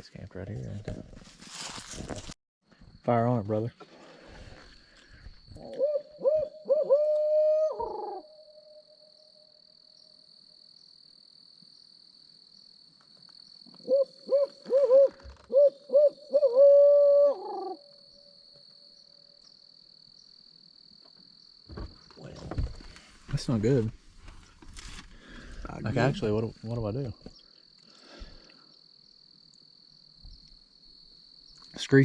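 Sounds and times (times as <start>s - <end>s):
owl call hoots: 5.5s - 8.9s, 13.8s - 18.0s.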